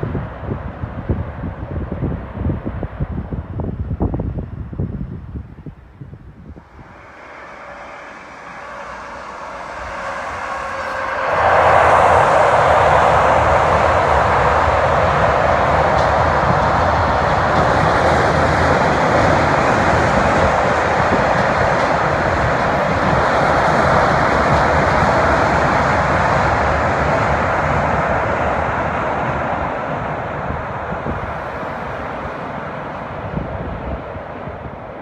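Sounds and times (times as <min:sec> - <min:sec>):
train wheels rumbling on bridge: 0:06.1 - 0:35.0.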